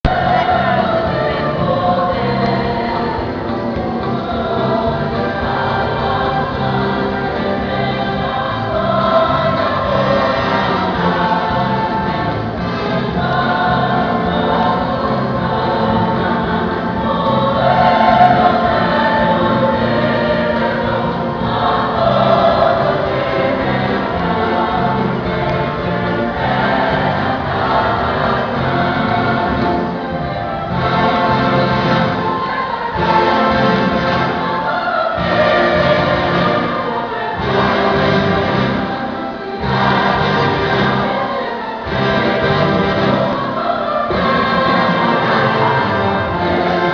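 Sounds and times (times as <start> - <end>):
choir singing gospel: 0.0 - 46.9.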